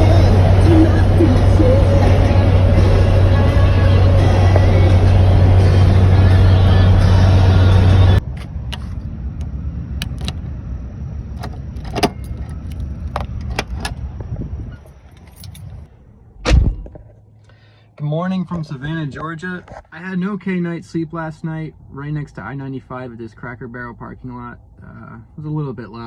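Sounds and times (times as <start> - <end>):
vehicle running hum: 0.0 - 26.0
loud thump: 16.4 - 17.1.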